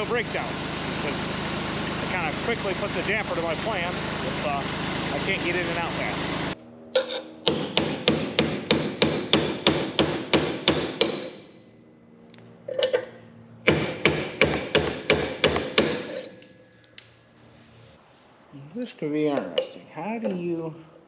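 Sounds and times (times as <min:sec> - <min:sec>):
hammer striking metal: 0:07.0 - 0:11.5, 0:13.7 - 0:16.4.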